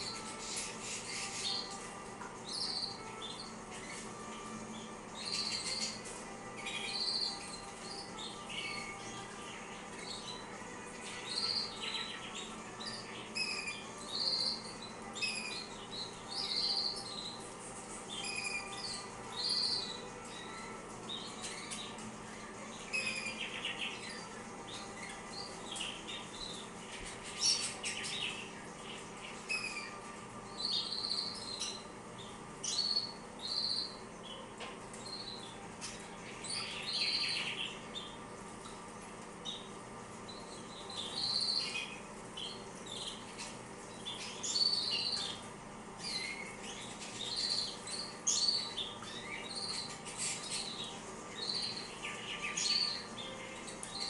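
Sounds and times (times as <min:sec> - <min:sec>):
canaries chirping: 0:00.0 - 0:54.0.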